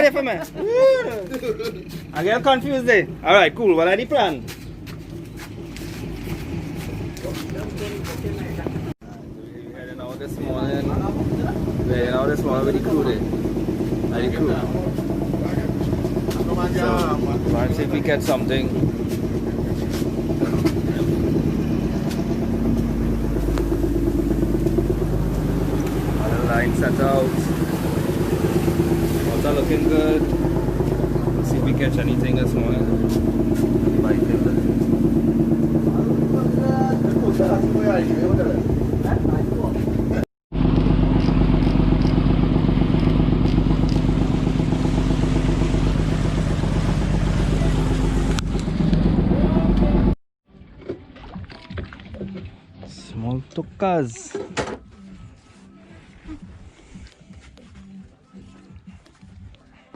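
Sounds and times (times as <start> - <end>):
boat engine running: 0.0 - 59.7
wind: 0.0 - 59.9
water rushing: 23.1 - 33.0.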